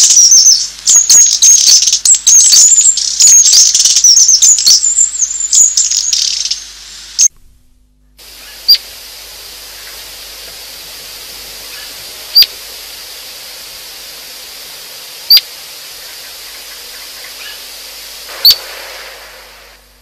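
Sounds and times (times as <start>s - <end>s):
steady hiss: 0.0s - 7.3s, 8.2s - 20.0s
bird chirping sharply: 11.0s - 18.9s.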